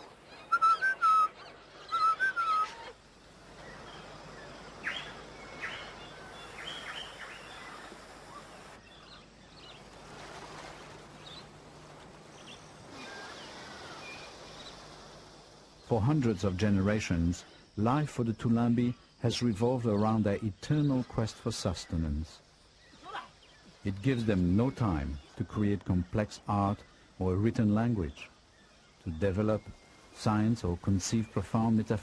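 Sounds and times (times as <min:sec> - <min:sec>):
warbling bird call: 0:00.0 - 0:03.0, 0:12.3 - 0:15.2.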